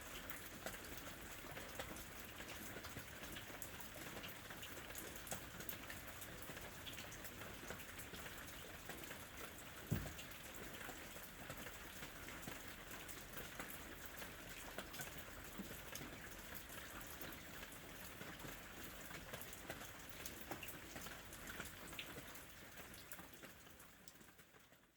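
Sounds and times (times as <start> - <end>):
raindrops ticking on a surface: 0.0 - 24.9
short low thump: 9.9 - 10.2.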